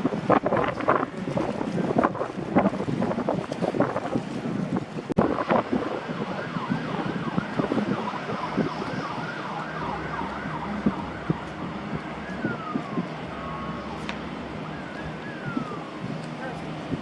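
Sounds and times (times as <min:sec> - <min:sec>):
siren yelping: 0:05.3 - 0:16.9.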